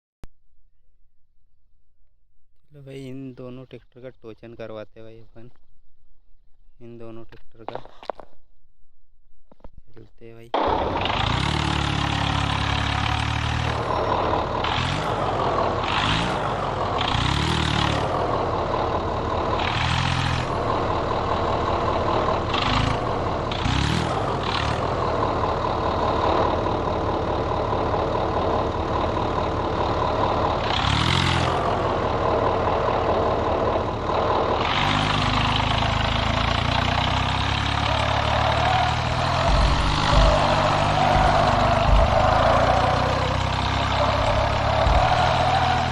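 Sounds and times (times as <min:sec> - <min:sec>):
tractor diesel engine revving: 0:10.6 - 0:45.9.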